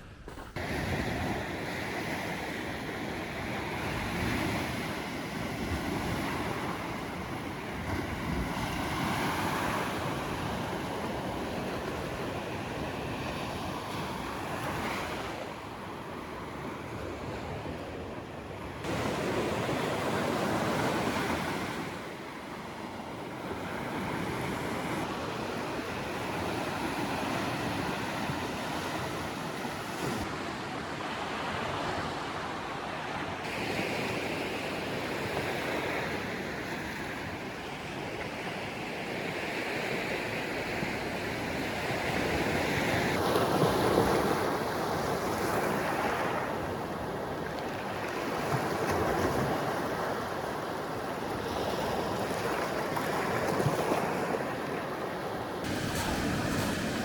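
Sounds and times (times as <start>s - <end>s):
surf breaking on shore: 51.4s - 57.0s
wind buffeting microphone: 52.0s - 57.0s.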